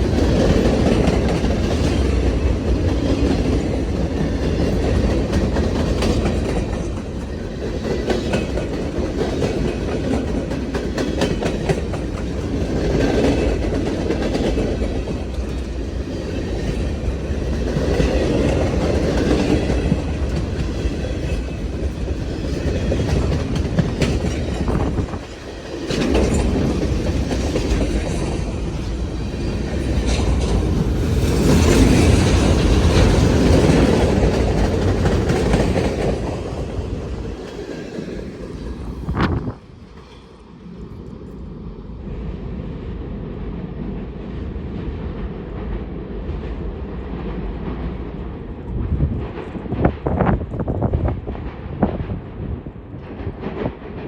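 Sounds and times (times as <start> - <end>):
wheels clicking over rail joints: 0.0 - 39.1
freight train cars rolling: 0.0 - 41.7.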